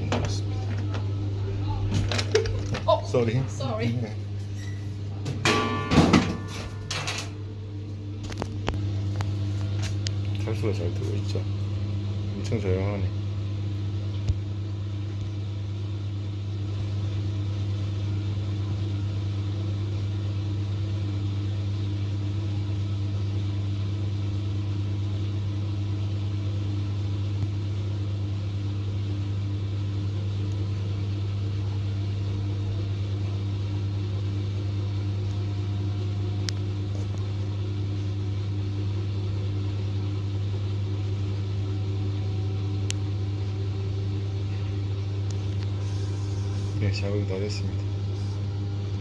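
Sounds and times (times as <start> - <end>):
washing machine spin cycle hum: 0.0 - 49.0.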